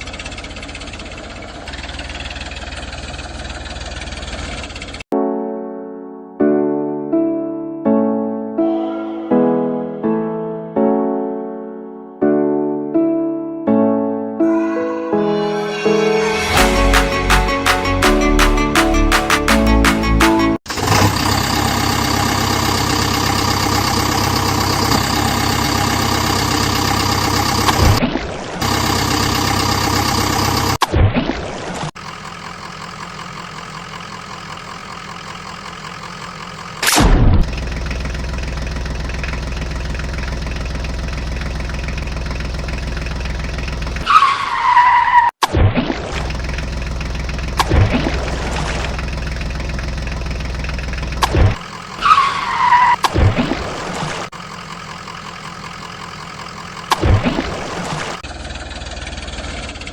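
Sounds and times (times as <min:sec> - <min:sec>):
engine running: 0:00.0 - 0:05.1, 0:16.6 - 0:28.0, 0:28.6 - 0:30.8, 0:32.0 - 0:44.1, 0:46.2 - 0:59.9.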